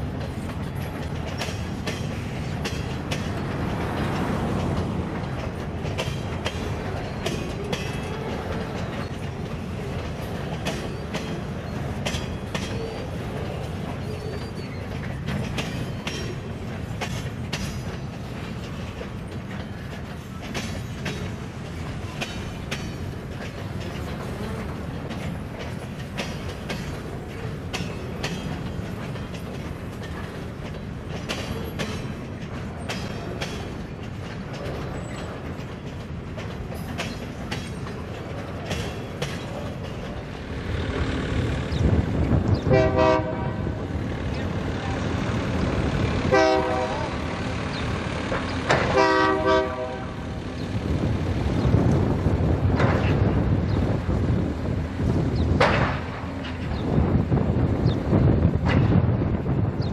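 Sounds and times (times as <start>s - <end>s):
freight train rumble: 0.0s - 59.9s
wheels clicking over rail joints: 0.0s - 59.9s
faint wheel squeals: 12.6s - 15.2s.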